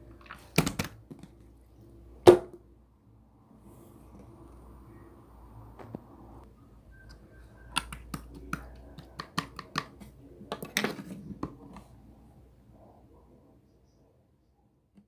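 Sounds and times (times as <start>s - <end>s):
sharp clicks and taps: 7.7s - 10.8s.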